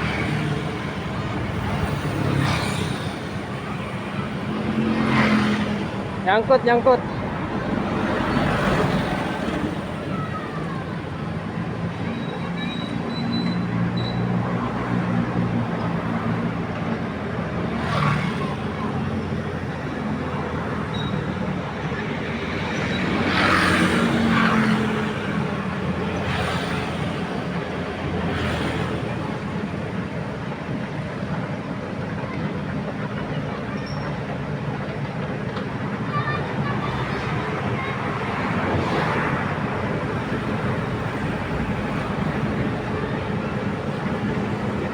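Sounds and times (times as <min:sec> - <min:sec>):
constant rushing noise: 0:00.0 - 0:44.9.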